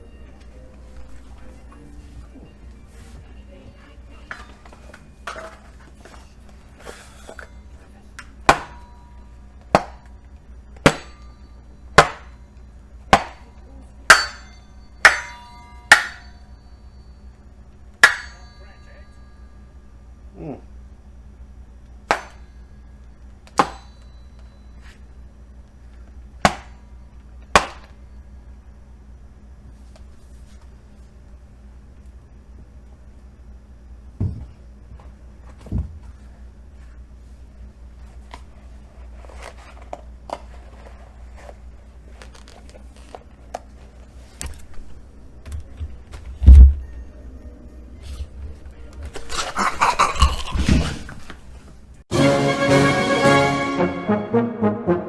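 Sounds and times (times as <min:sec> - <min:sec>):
sharp impacts: 0:18.0 - 0:18.7.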